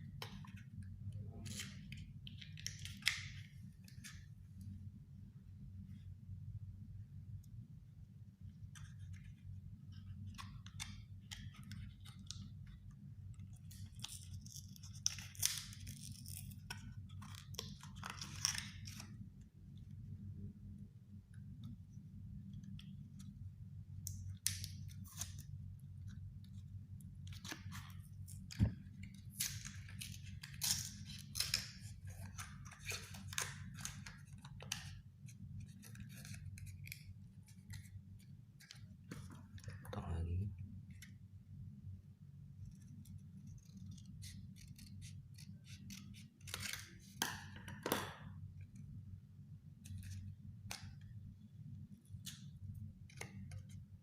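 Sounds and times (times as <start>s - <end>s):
steady low hum: 18.8s - 46.5s
scissors cutting cardboard: 43.5s - 46.9s.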